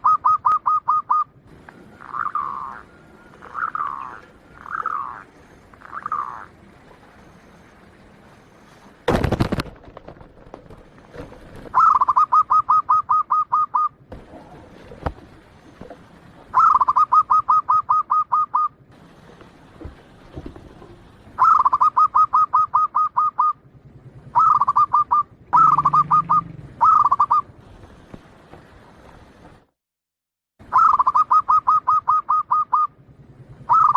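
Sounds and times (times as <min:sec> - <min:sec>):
dove cooing song: 0:00.0 - 0:07.9, 0:11.1 - 0:15.8, 0:16.4 - 0:18.7, 0:20.6 - 0:27.5, 0:30.7 - 0:33.0, 0:33.6 - 0:33.9.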